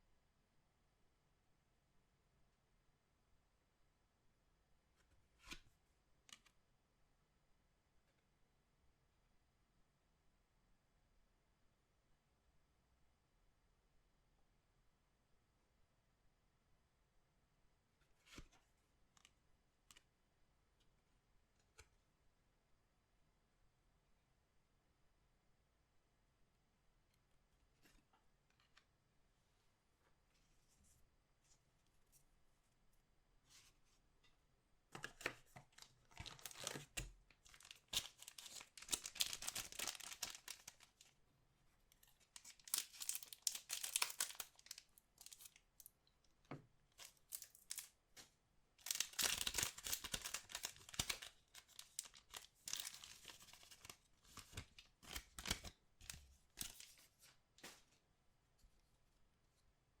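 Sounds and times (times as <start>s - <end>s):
packaging tearing and crinkling: 35.7s - 41.1s, 42.4s - 45.6s, 48.8s - 57.0s.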